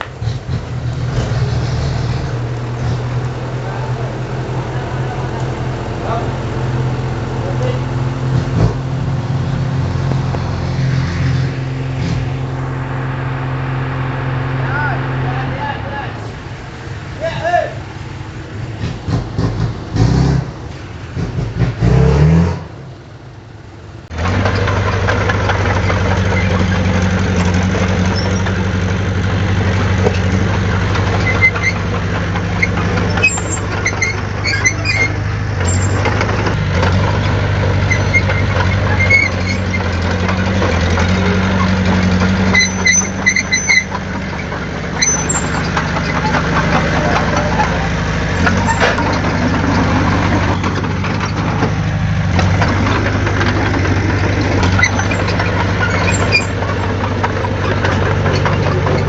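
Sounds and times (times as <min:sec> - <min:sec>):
heavy diesel engine running: 0:00.0 - 0:59.0
faint high squeaks: 0:32.6 - 0:36.1, 0:37.8 - 0:40.1, 0:42.5 - 0:46.4, 0:54.6 - 0:56.9.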